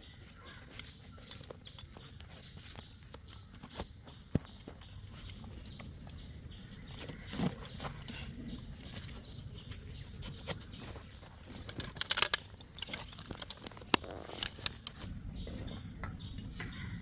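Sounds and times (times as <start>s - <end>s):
metal hardware clinking and jangling: 0.4s - 2.8s, 7.7s - 17.0s.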